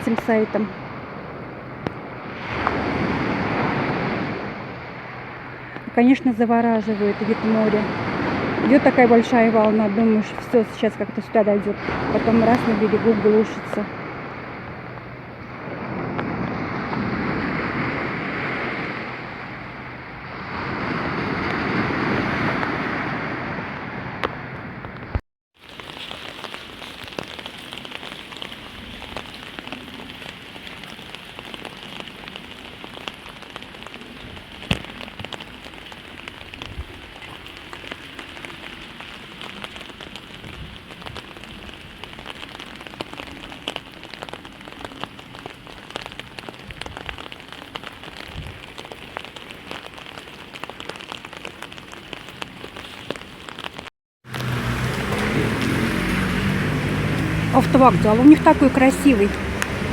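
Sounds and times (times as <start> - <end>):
steady rain falling: 0.0 - 22.8, 25.6 - 59.9.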